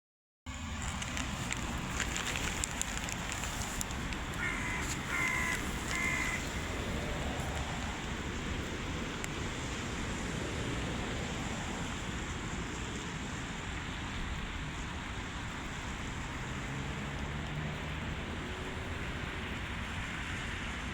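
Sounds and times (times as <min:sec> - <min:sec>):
crow cawing: 0:04.3 - 0:07.3.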